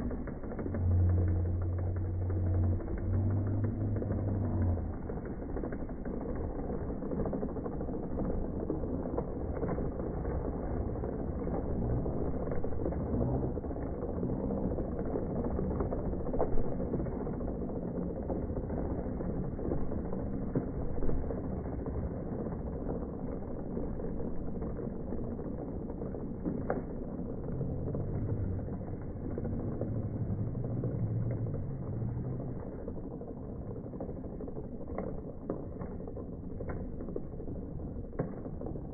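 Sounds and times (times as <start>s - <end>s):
low drawn-out voice sounds: 11.7s - 15.7s.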